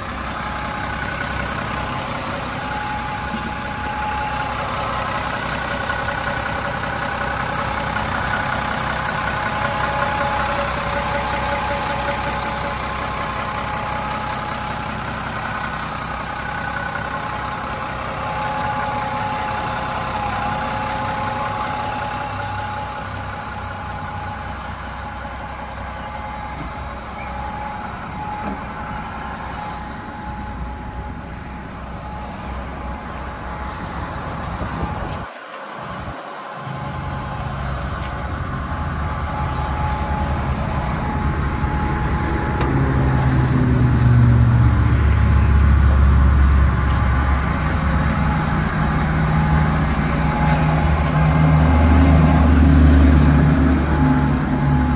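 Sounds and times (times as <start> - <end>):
diesel engine running: 0.0 - 54.9
steady whine: 0.0 - 54.9.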